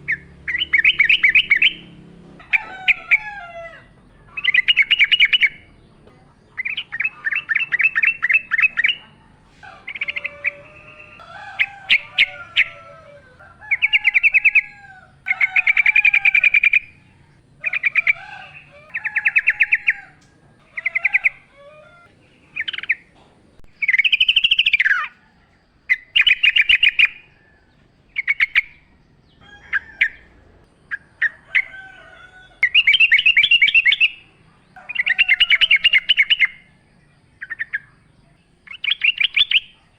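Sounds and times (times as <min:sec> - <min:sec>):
bird singing bubbly trills: 0:00.0 - 0:01.9, 0:04.4 - 0:09.2, 0:22.2 - 0:25.3, 0:32.6 - 0:34.3, 0:37.4 - 0:39.9
other birds calling softly: 0:00.0 - 0:39.9.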